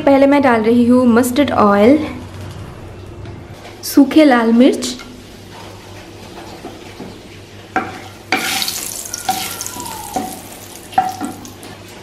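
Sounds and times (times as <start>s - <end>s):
chillies sizzling in oil: 7.8s - 12.0s.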